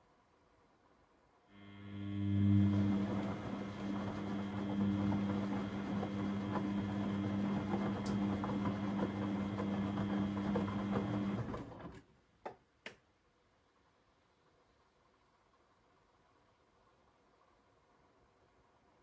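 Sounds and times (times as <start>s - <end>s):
washing machine motor humming: 1.6s - 12.0s.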